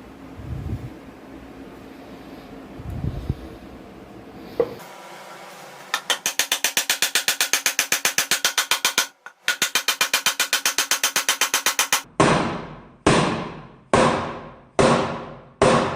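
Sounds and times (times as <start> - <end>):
rapid clicks: 5.9 - 12.1.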